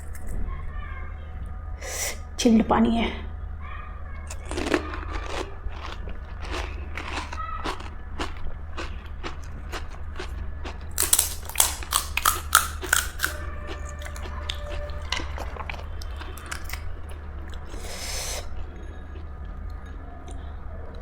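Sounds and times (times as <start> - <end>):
steady low hum: 0.0 - 21.0
crisp shells crunching: 4.3 - 17.8
chewing: 4.3 - 21.0.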